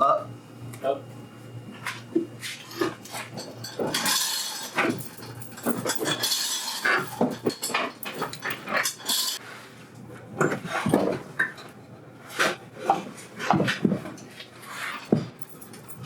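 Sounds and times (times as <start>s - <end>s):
metal clinks and clanks: 2.7s - 9.4s, 15.0s - 16.0s.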